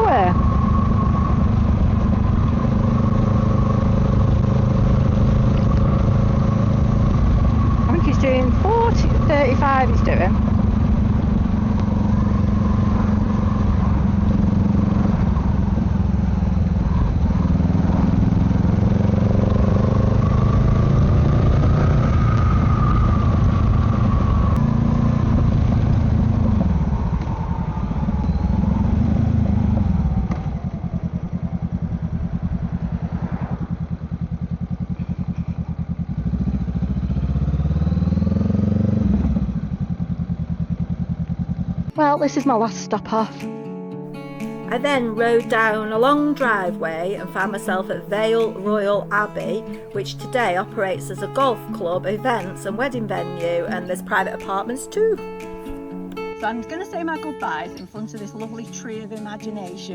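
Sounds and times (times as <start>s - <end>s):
wind noise: 0.0s - 34.1s
motorcycle engine running: 0.0s - 42.6s, 44.1s - 59.5s
road noise: 0.0s - 43.2s, 43.9s - 59.9s.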